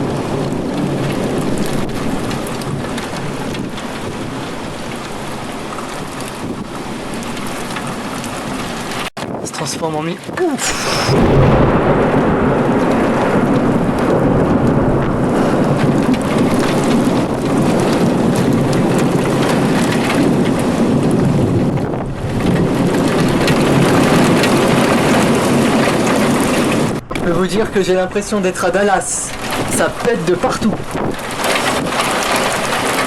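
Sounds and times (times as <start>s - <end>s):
thunder rumbling: 0.0s - 9.1s, 10.3s - 33.0s
heavy rain pouring: 0.0s - 33.0s.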